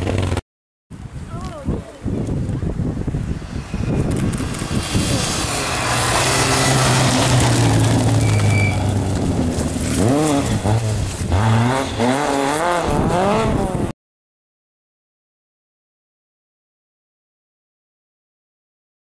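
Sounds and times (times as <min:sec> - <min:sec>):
rally car engine revving: 0:03.8 - 0:13.9.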